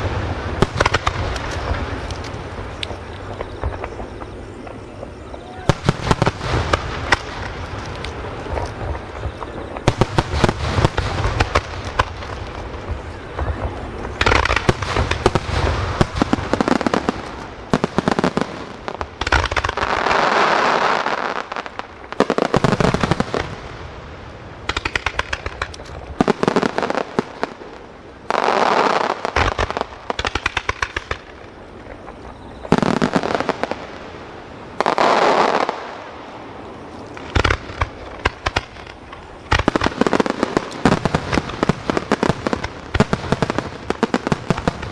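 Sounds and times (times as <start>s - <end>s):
fireworks bursts and crackling: 0.0s - 44.9s.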